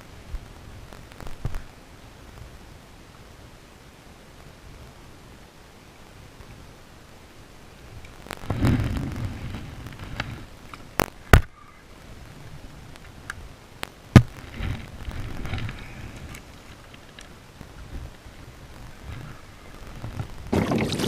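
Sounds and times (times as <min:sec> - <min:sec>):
rustling in kayak: 0:07.8 - 0:13.6, 0:14.2 - 0:21.0.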